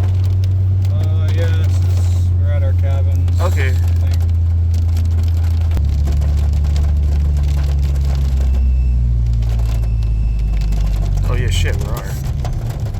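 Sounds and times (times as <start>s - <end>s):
car engine droning: 0.0s - 12.9s.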